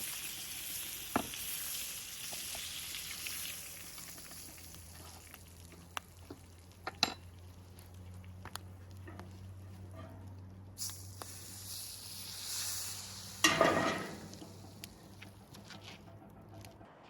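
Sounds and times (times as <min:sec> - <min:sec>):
meat sizzling in a skillet: 0:00.0 - 0:06.3, 0:10.8 - 0:14.8.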